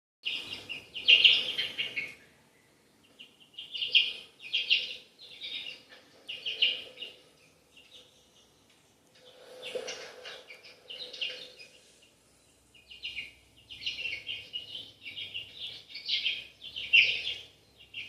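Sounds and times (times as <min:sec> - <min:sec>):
chicks chirping: 0:00.2 - 0:18.0.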